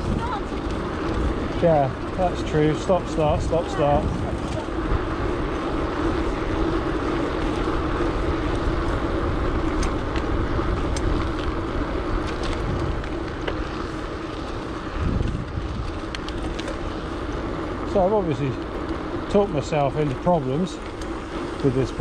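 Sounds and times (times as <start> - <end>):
bicycle drivetrain clicks: 0.0 - 22.0
tyres rumbling on tarmac: 0.0 - 22.0
wind buffeting microphone: 0.0 - 22.0.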